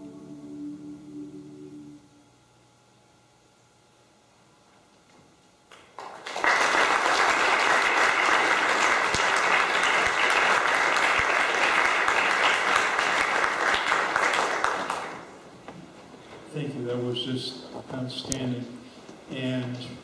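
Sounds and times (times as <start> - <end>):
congregation clapping: 5.7 - 15.4.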